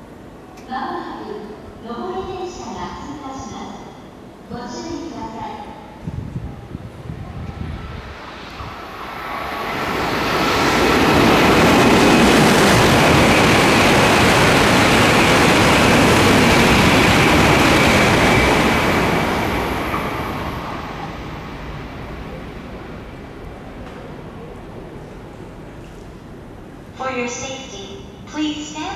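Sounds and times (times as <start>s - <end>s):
train rushing past: 1.4s - 27.0s.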